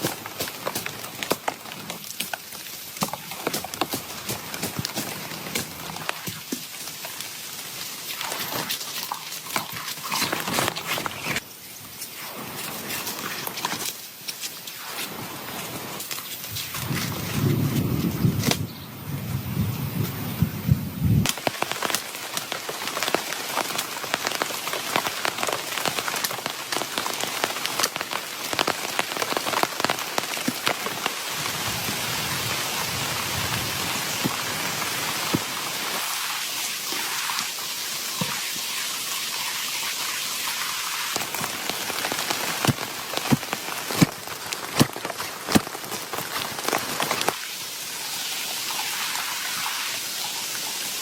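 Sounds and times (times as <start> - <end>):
heavy rain falling: 21.2 - 37.2, 40.8 - 47.8.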